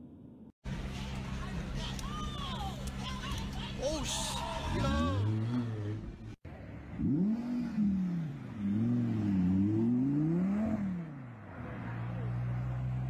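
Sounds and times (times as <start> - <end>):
sports car engine revving: 6.9 - 11.2.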